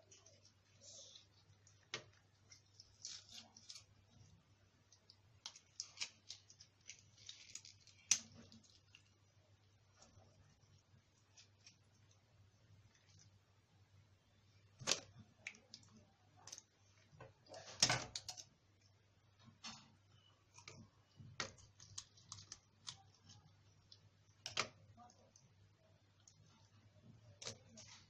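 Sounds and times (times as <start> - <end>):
fish being cleaned and cut: 0.0 - 4.4.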